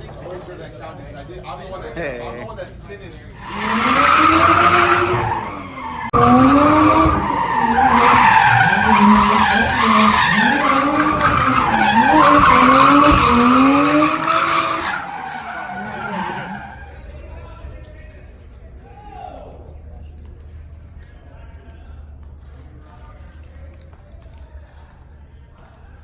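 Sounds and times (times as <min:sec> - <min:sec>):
car engine revving: 0:03.4 - 0:16.9
tyres squealing: 0:03.4 - 0:16.9.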